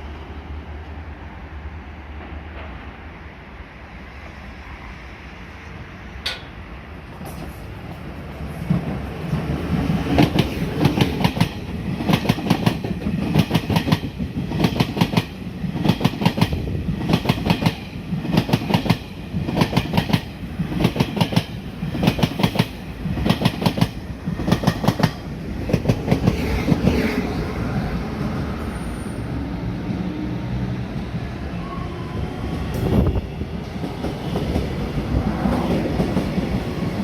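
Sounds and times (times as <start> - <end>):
train wheels clacking on rail joints: 9.8 - 27.3.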